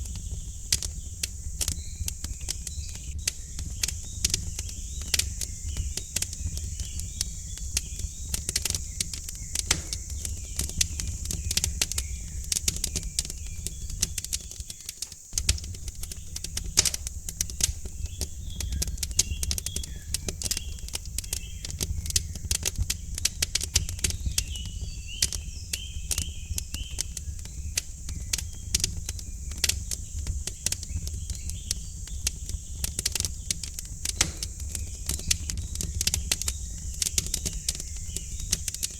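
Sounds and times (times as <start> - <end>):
faint bird chirps: 0.0 - 38.9
wood fire crackling: 0.0 - 38.9.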